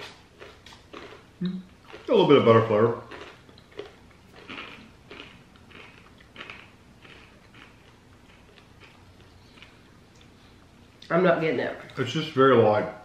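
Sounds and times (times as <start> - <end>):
crunchy corn snack being chewed: 0.0 - 10.4.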